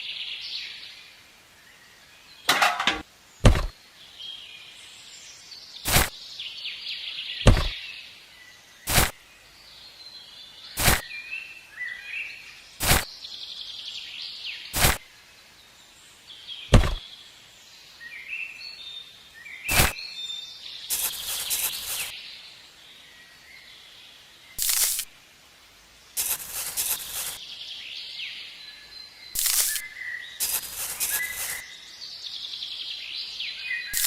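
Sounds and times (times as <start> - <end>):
birds chirping: 1.7 - 25.1, 25.9 - 34.0
sharp knocks: 2.5 - 3.7, 7.5 - 7.7, 16.7 - 17.0.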